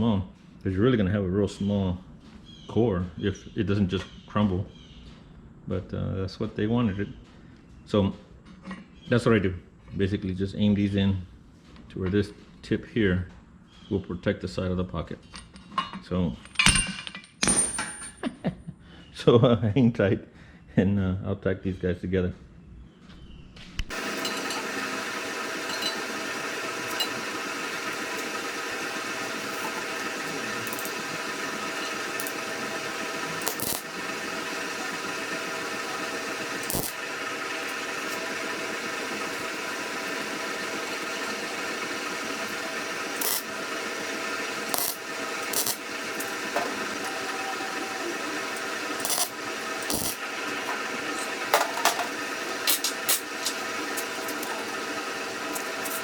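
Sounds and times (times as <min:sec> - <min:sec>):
welding arc crackling: 0:23.9 - 0:56.0
sharp pops and spatter clicks: 0:25.6 - 0:43.6.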